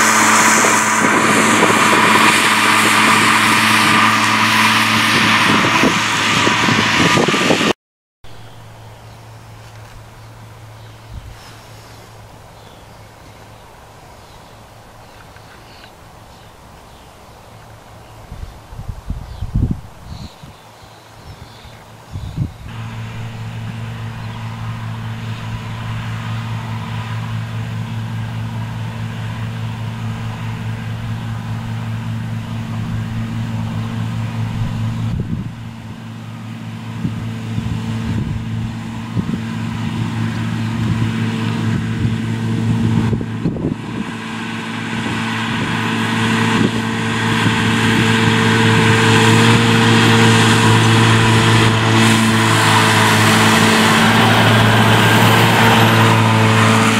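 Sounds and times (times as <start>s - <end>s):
disc mower cutting grass: 0.0s - 7.7s, 22.7s - 56.9s
tractor diesel engine running: 0.0s - 7.7s, 8.3s - 18.2s, 22.6s - 56.9s.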